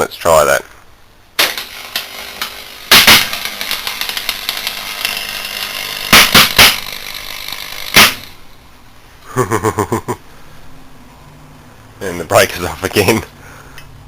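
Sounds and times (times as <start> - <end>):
loud electrical bangs: 1.4 - 8.6
electrical arc crackling: 1.4 - 8.7.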